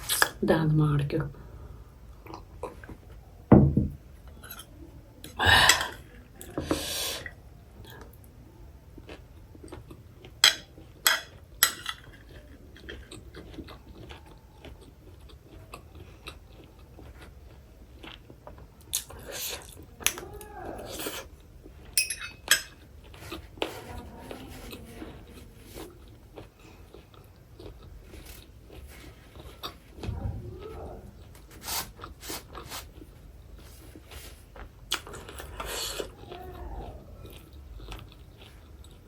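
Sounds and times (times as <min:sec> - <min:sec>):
chewing and crunching: 0:02.1 - 0:03.4, 0:04.2 - 0:39.0
tableware clicking and knocking: 0:10.4 - 0:12.3, 0:22.0 - 0:22.8.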